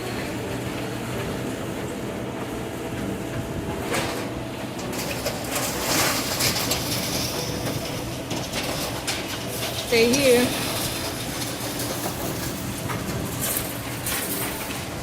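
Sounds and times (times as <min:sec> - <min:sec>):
excavator engine running: 0:00.0 - 0:15.0
debris scraping and clattering: 0:03.9 - 0:15.0.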